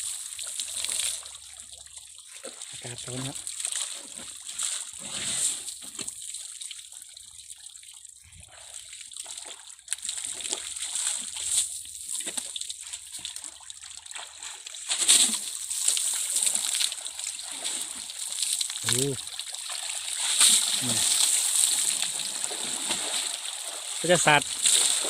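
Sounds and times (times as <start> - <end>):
elephant splashing water: 8.4 - 25.0.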